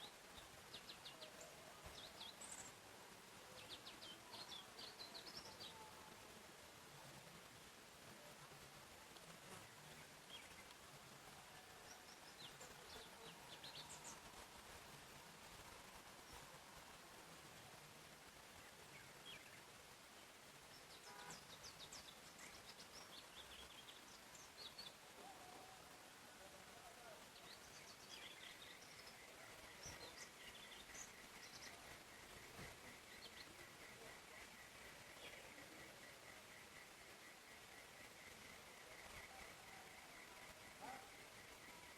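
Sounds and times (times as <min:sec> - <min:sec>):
soft steady hiss: 0:00.0 - 0:41.9
birds chirping: 0:18.4 - 0:41.9.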